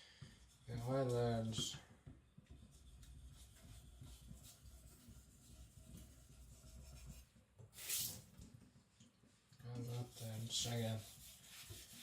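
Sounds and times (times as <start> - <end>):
knife rubbing on whetstone: 10.1 - 12.0.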